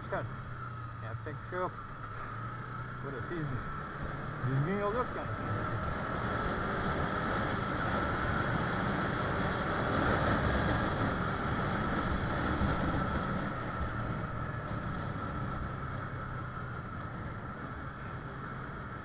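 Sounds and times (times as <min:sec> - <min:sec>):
motorcycle engine running: 0:00.0 - 0:19.0
wind rushing over microphone: 0:02.4 - 0:19.0.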